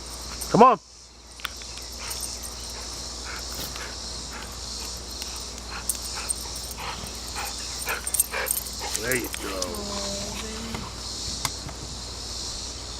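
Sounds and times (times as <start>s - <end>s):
crickets chirping: 0.0s - 12.9s
dog breathing in quick huffs: 1.9s - 9.3s.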